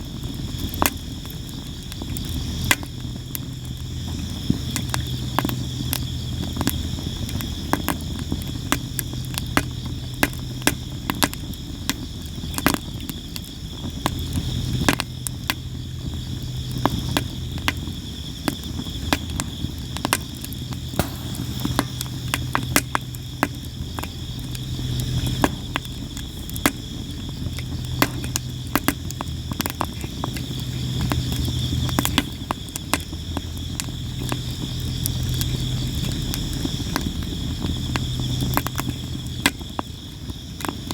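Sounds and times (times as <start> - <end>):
crickets chirping: 0.0 - 40.9
wood fire crackling and popping: 0.1 - 39.9
low wavering hum: 21.0 - 26.3.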